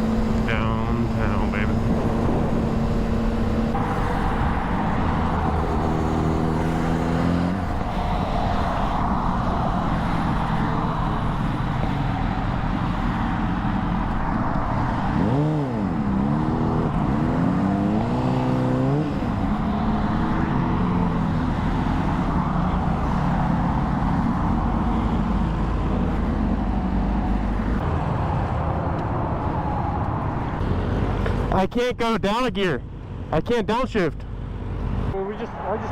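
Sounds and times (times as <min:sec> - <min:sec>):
motorcycle engine revving: 0:00.0 - 0:28.0
wind and road noise: 0:00.0 - 0:35.9.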